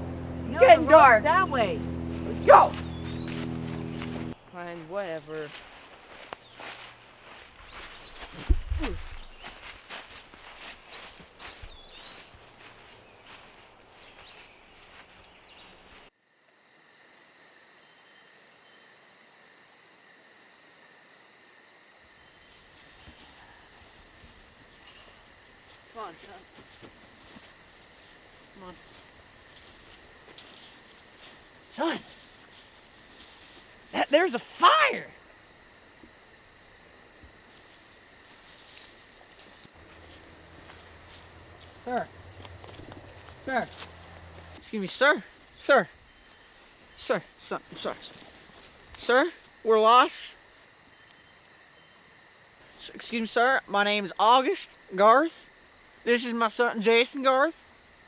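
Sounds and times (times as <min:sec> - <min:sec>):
crickets and insects trilling: 0:00.0 - 0:04.4, 0:16.2 - 0:58.0
faint low hum: 0:00.0 - 0:04.4, 0:38.5 - 0:44.7
footsteps on forest floor: 0:01.8 - 0:04.4, 0:05.4 - 0:16.0, 0:22.4 - 0:46.9, 0:47.6 - 0:49.6
bird chirps: 0:02.6 - 0:04.4.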